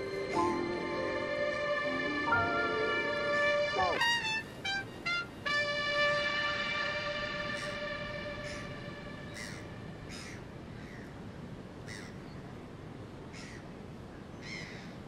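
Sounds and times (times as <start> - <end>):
sustained music tones: 0.0 - 10.6
low outdoor ambience: 0.0 - 15.0
bird harsh calls: 7.5 - 11.1.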